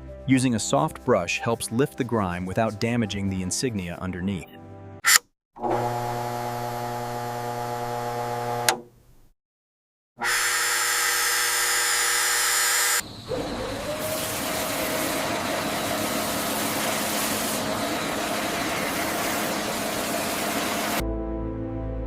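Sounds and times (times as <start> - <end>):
music: 0.0 - 5.0, 21.0 - 22.0
motor whining: 5.6 - 8.8, 10.2 - 21.0.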